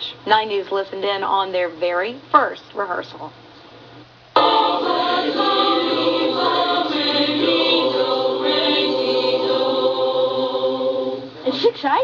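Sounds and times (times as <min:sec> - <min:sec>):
choir singing a cappella: 0:04.4 - 0:11.5.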